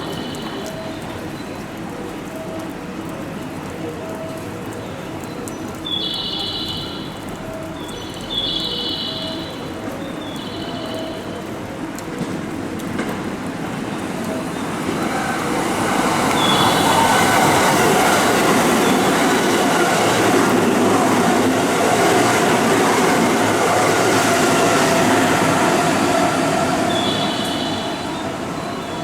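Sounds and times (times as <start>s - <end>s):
wheels squealing on rails: 12.2s - 29.0s
electric train running: 12.9s - 29.0s.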